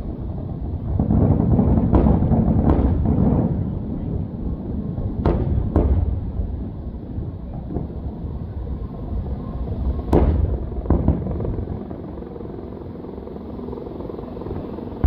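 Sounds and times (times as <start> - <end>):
fireworks bangs: 0.8 - 11.8.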